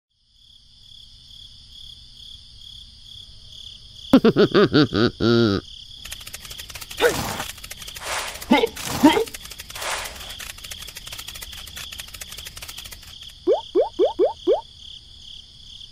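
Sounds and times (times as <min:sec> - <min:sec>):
crickets chirping: 0:00.2 - 0:15.9
rustling: 0:06.0 - 0:13.4
quick up-and-down pitched calls: 0:06.0 - 0:14.6.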